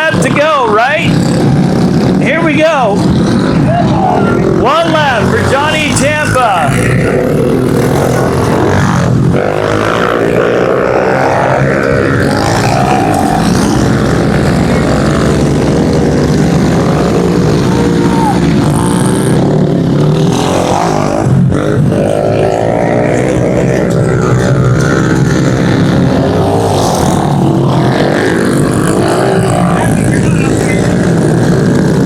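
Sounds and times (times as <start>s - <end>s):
pit bike engines revving: 0.0s - 32.0s.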